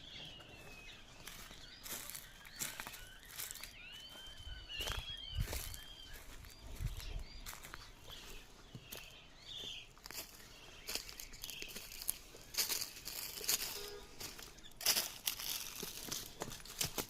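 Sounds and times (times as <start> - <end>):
small birds chirping: 0.0 - 17.0
crackling rustles: 10.0 - 17.0.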